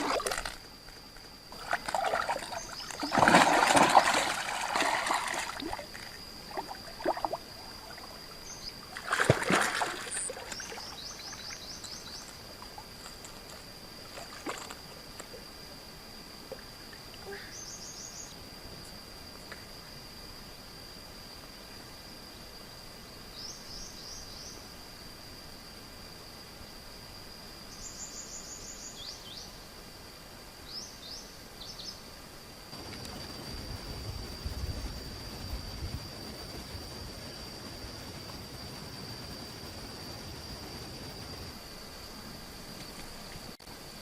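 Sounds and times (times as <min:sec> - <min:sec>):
water splashing and trickling: 0:00.0 - 0:00.6, 0:01.5 - 0:11.6.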